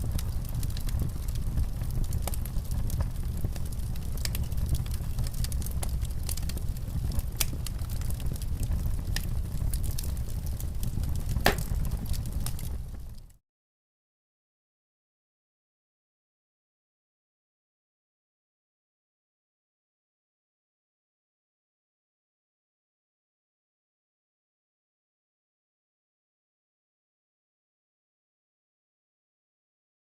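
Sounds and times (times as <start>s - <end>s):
sharp pops of fire: 0.0s - 13.3s
low rumble of fire: 0.0s - 13.4s
wood fire crackling: 0.0s - 13.4s.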